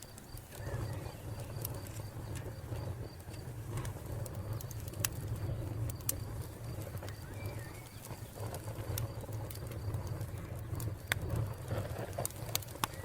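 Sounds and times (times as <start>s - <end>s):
bird chirp: 0.0s - 2.4s, 5.3s - 11.0s
wood fire crackling and popping: 0.0s - 13.0s
low steady rumble: 0.6s - 12.9s.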